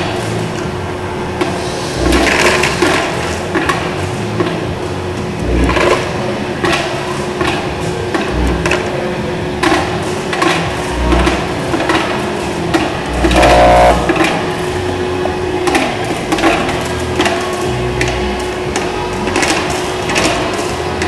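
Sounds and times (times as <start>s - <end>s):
steady machine hum: 0.0s - 20.1s
brief buzz: 13.1s - 14.4s.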